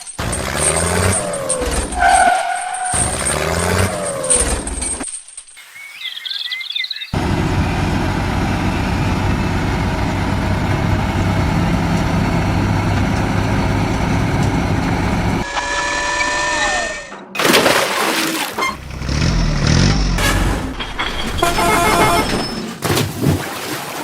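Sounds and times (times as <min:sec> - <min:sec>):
diesel engine running: 0:07.2 - 0:15.4, 0:18.6 - 0:22.5.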